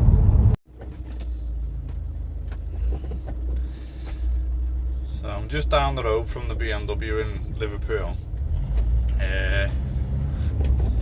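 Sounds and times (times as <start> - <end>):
van engine and road rumble: 0.0 - 11.0.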